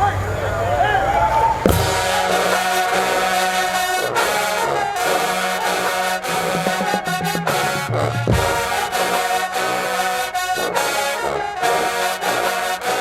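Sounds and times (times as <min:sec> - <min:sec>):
marching band brass chords: 0:01.7 - 0:13.0
steady low bass line: 0:06.2 - 0:09.2.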